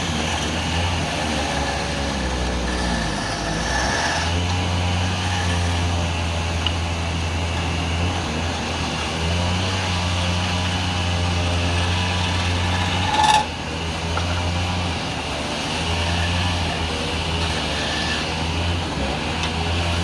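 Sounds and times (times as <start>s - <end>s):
wood lathe running: 0.0s - 20.0s.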